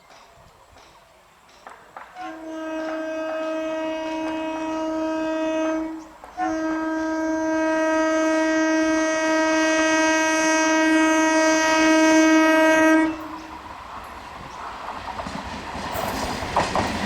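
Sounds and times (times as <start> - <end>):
train horn blasts: 2.0 - 13.6.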